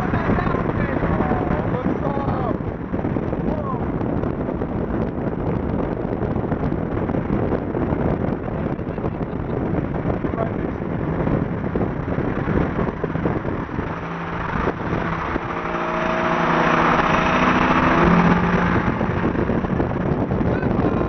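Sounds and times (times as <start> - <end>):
road and engine rumble: 0.0 - 21.0
passing vehicle engine: 9.5 - 20.5.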